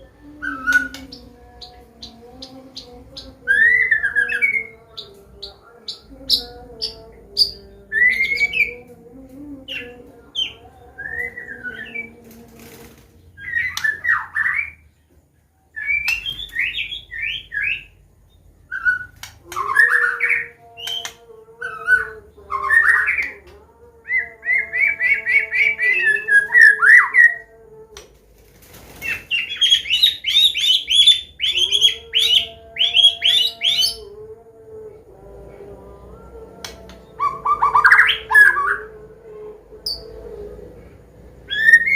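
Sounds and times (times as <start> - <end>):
steady low hum: 0.0 - 13.8, 33.5 - 41.9
bird singing whistles and trills: 0.4 - 8.8, 13.4 - 14.9, 15.8 - 23.4, 29.0 - 34.0, 41.5 - 41.9.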